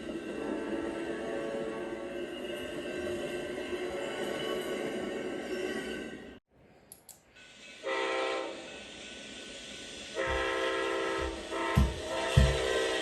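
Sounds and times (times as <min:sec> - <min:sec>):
locomotive air horn blasts: 0:07.8 - 0:08.6, 0:10.1 - 0:13.0
passing train thumps: 0:10.2 - 0:13.0.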